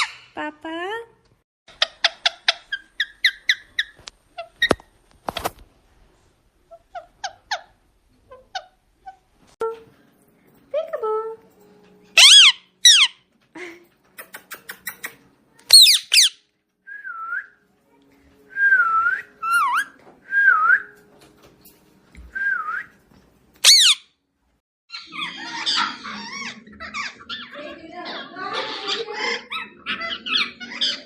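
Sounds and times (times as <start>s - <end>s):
parrot chattering: 12.2s - 13.2s, 14.2s - 16.4s, 23.6s - 24.0s
parrot screeching: 12.2s - 13.2s, 15.7s - 16.4s, 23.6s - 24.1s, 24.9s - 31.0s
parrot whistling: 12.2s - 13.2s, 15.7s - 16.4s, 18.6s - 20.9s, 23.6s - 24.0s.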